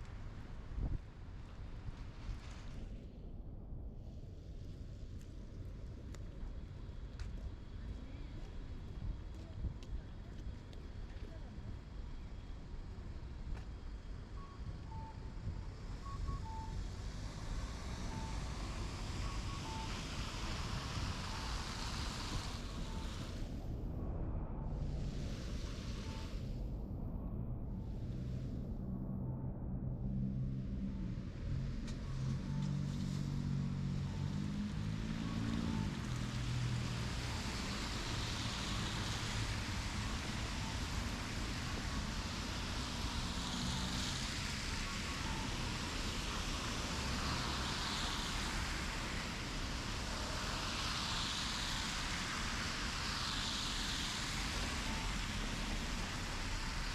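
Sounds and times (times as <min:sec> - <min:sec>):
low engine hum: 0:00.0 - 0:56.9
wind rumble on microphone: 0:00.0 - 0:56.9
traffic hiss: 0:10.6 - 0:23.8, 0:24.7 - 0:26.8, 0:30.0 - 0:56.9.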